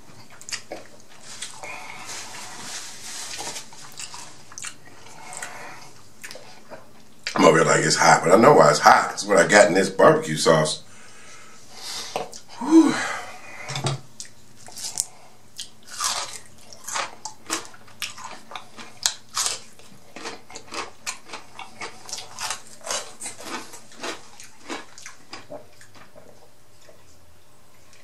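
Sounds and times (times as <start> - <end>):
person chewing with mouth smacks: 0.2 - 1.7, 3.4 - 7.4, 14.2 - 27.2.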